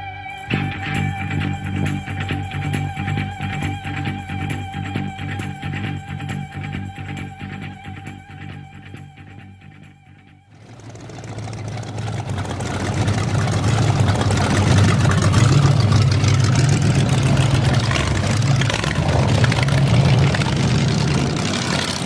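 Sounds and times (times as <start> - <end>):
pickup engine idling loudly: 10.6 - 22.0.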